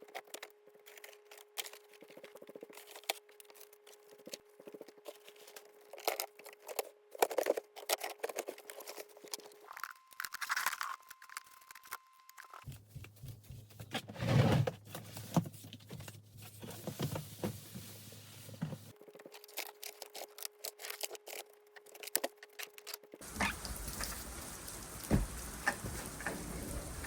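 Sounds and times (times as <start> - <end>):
household items knocking and rustling: 23.2 - 27.0
thumps: 23.3 - 27.0.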